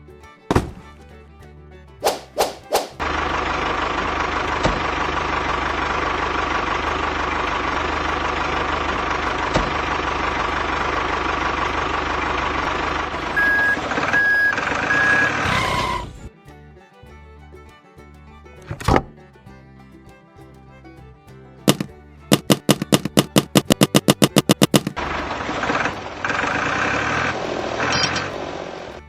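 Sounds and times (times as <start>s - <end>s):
truck engine running: 2.8s - 29.0s
reversing alarm beeping: 13.3s - 16.2s.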